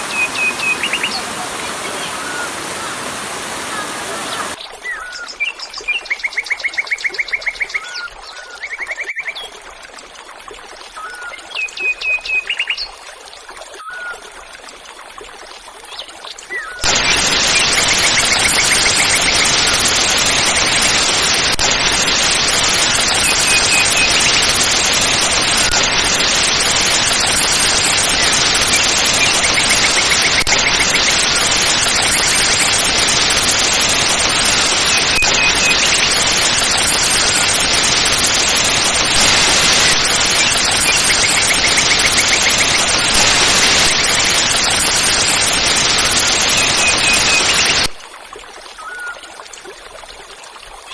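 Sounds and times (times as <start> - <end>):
waterfall rushing: 0.0 - 4.6, 16.8 - 48.0
birds chirping: 0.0 - 5.0, 16.8 - 47.9.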